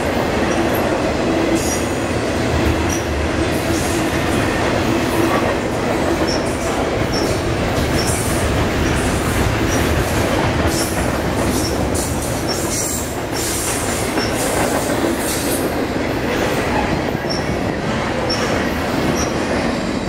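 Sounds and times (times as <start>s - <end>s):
steel wheels rumbling on rail: 0.0s - 20.0s
wheels clicking over rail joints: 5.3s - 19.7s.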